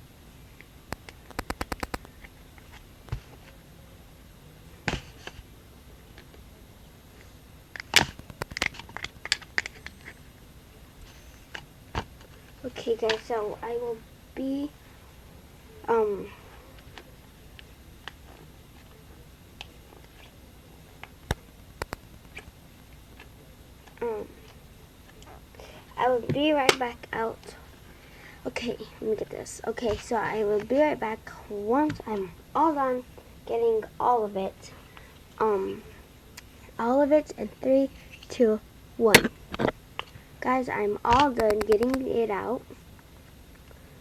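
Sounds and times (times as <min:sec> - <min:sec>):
handling clicks: 0:00.9 - 0:02.2
handling clicks and taps: 0:21.3 - 0:22.4.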